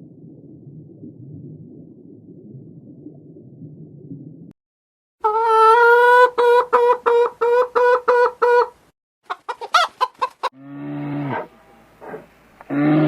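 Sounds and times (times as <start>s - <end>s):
chicken calling: 5.2s - 10.6s.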